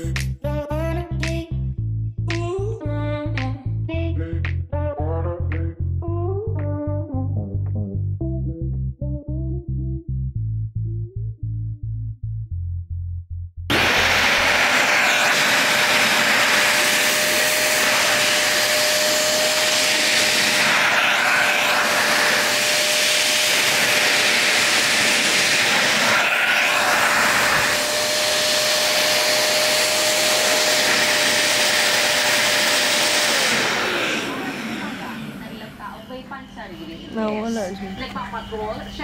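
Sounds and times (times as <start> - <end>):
stick vacuum cleaner running: 13.7 - 39.0.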